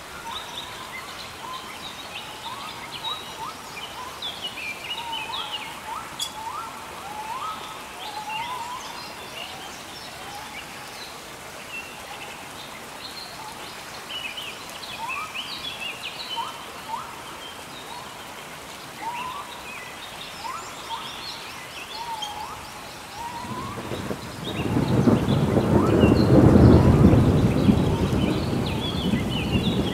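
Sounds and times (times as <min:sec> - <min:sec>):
birds whistling and chirping: 0:04.9 - 0:06.7, 0:21.9 - 0:29.9
rain hissing: 0:21.6 - 0:29.9.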